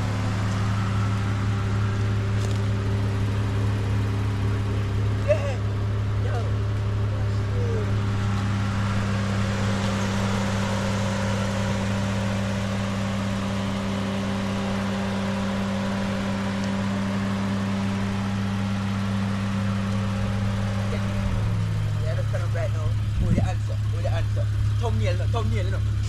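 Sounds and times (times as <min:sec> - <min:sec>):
car engine drone: 0:00.0 - 0:26.0.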